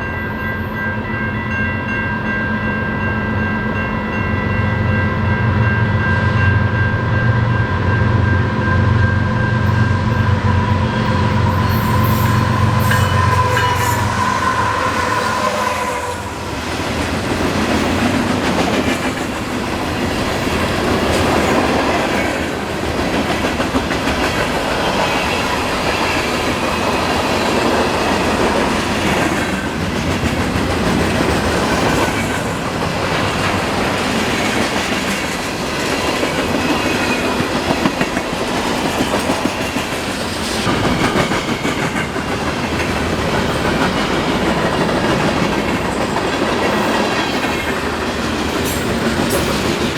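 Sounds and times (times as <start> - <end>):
diesel train engine: 2.9 - 49.9
train horn chord: 6.6 - 16.6.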